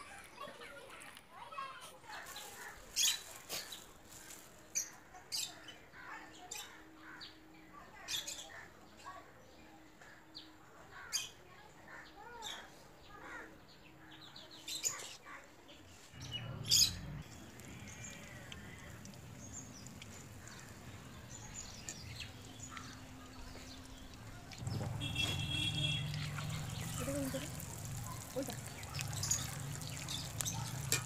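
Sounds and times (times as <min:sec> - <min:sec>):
birds chirping: 0:16.2 - 0:31.0
food frying in hot oil: 0:17.2 - 0:31.0.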